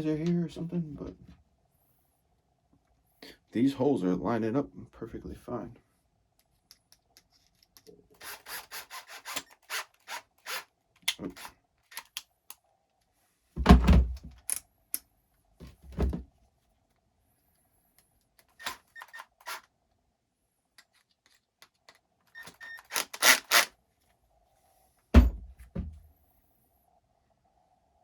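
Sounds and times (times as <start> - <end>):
small parts clicking and rattling: 6.4 - 12.6, 20.8 - 23.7
dull knock: 25.2 - 26.0
low thump: 25.2 - 26.0.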